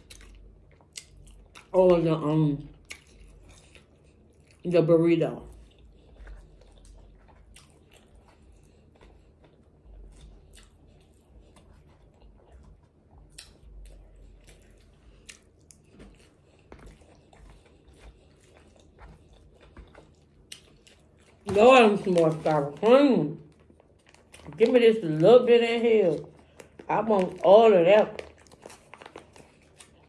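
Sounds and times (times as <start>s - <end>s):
chewing and mouth sounds: 0.0s - 30.0s.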